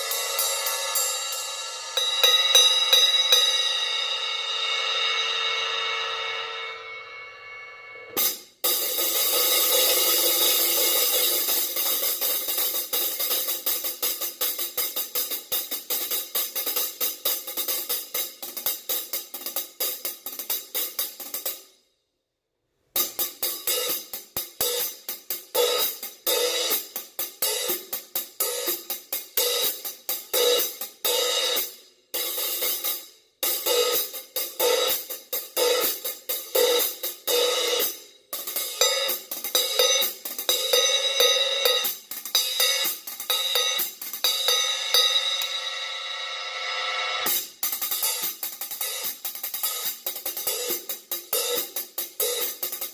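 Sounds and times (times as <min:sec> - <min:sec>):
hi-hat strokes: 0:00.0 - 0:10.5.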